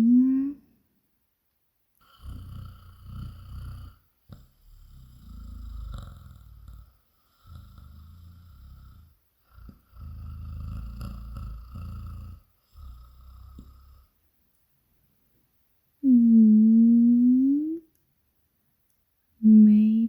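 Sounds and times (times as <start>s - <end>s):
woman imitating a cat purr: 0.0s - 0.7s, 16.0s - 17.9s.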